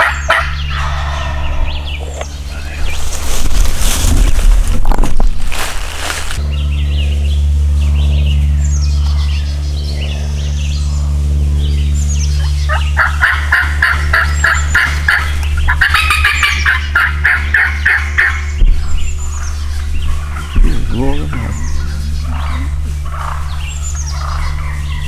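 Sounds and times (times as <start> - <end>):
turkeys gobbling: 0.0 - 4.1, 12.2 - 25.0
low hum: 0.0 - 25.0
small birds chirping: 0.0 - 25.0.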